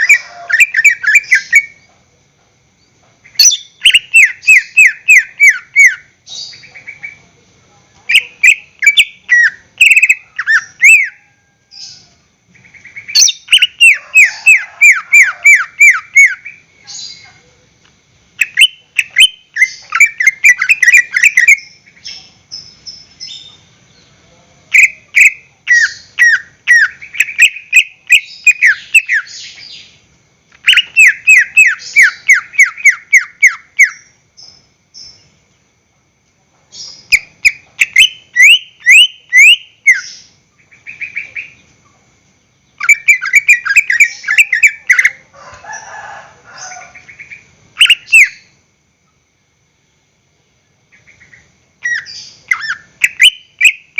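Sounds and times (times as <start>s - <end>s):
bird singing rapid whistled notes: 0.0s - 1.8s, 3.3s - 7.2s, 8.1s - 12.0s, 12.6s - 17.2s, 18.4s - 23.7s, 24.8s - 30.0s, 30.6s - 35.3s, 36.8s - 41.6s, 42.7s - 45.2s, 47.1s - 48.6s, 51.1s - 53.9s.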